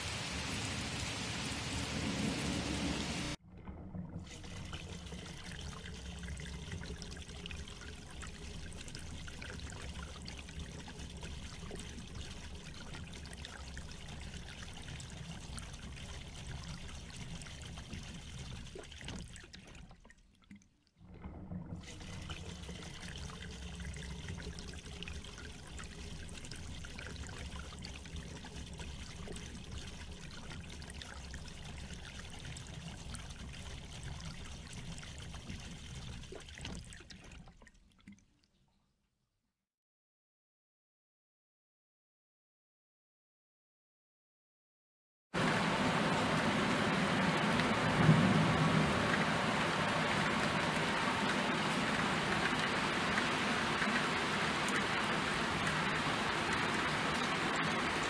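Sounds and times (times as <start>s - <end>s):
steady rain falling: 0.0s - 3.4s, 45.4s - 58.0s.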